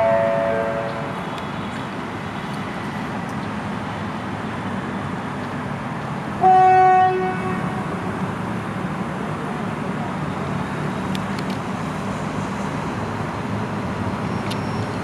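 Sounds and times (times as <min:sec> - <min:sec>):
train horn blast: 0:00.0 - 0:01.1, 0:06.4 - 0:07.8
train rumbling on track: 0:00.0 - 0:15.0.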